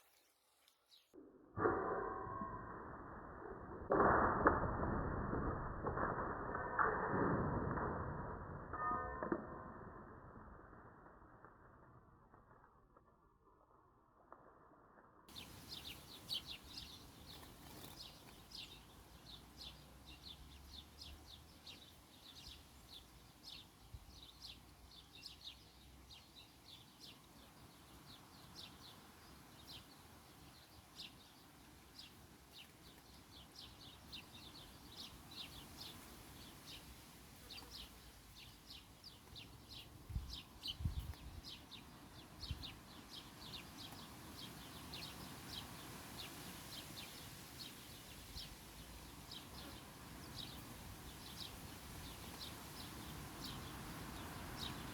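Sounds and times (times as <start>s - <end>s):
small birds chirping: 15.3s - 54.9s.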